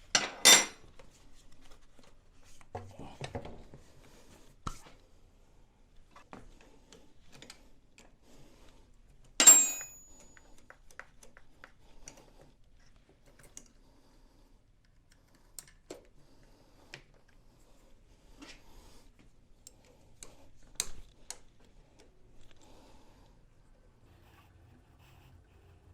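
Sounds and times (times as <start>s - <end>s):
hand tools clicking and tapping: 9.4s - 12.5s, 19.6s - 21.4s.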